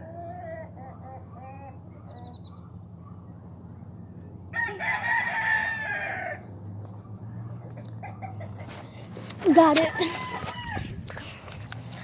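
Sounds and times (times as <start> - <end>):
rooster crowing: 4.5 - 6.5, 9.4 - 11.0.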